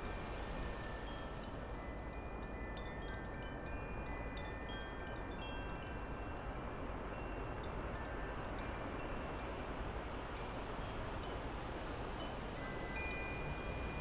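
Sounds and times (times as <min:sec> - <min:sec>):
metal wind chimes ringing: 0:00.0 - 0:11.5, 0:12.2 - 0:14.0.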